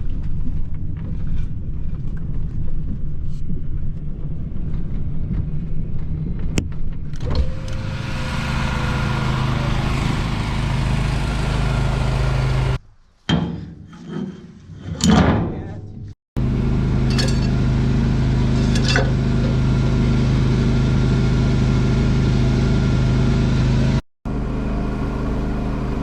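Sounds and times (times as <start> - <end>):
vehicle engine rumbling: 0.0 - 13.1, 16.0 - 26.0
humming machine noise: 3.5 - 12.8, 16.4 - 26.0.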